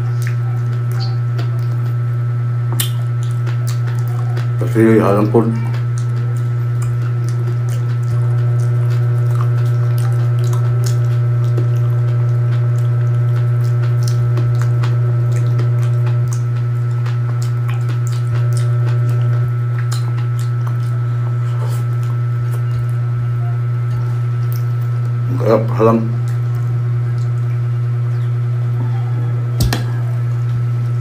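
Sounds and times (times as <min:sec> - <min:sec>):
wet chewing and mouth clicks: 0:00.0 - 0:30.7
steady low hum: 0:00.0 - 0:31.0.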